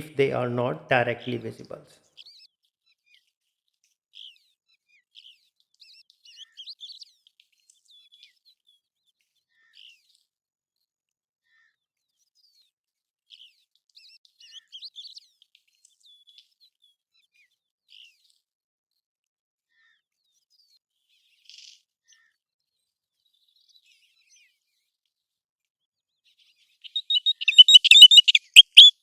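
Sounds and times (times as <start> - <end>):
bird whistled chirps: 26.9 - 29.0.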